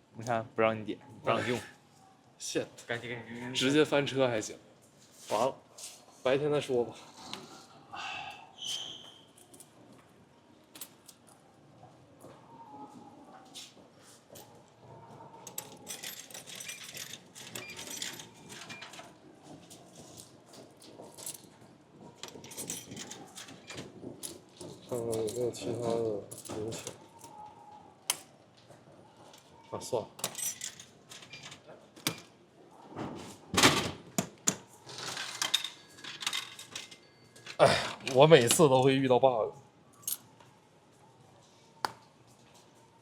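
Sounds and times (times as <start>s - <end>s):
clicks and knocks at vending machine: 33.5s - 37.0s.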